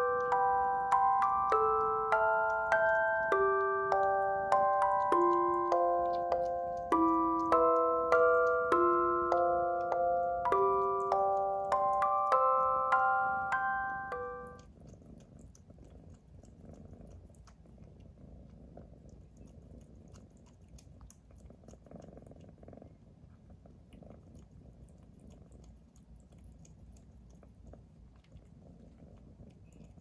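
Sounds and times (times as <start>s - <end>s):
kitten purring: 0.0s - 30.0s.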